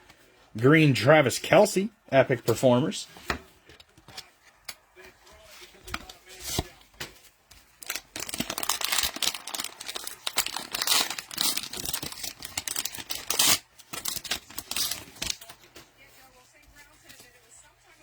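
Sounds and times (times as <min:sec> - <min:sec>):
cellophane wrapper crinkling and tearing: 0:07.6 - 0:15.6.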